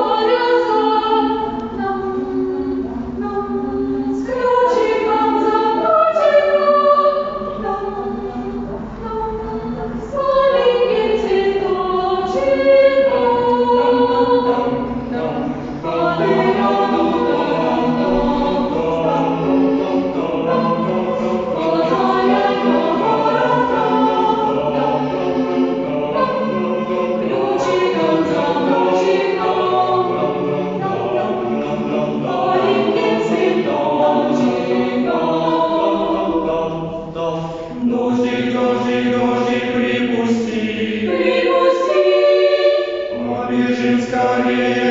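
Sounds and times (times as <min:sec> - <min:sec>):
choir singing: 0:00.0 - 0:44.9.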